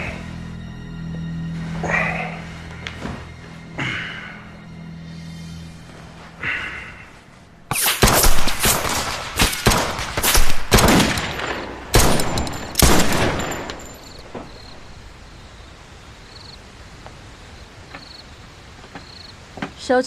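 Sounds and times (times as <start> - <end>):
rapid gunshots echoing: 7.7 - 13.8.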